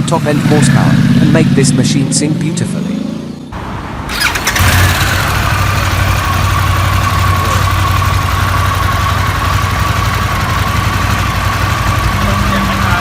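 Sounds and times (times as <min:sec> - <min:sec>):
motorcycle engine idling: 0:04.1 - 0:13.0.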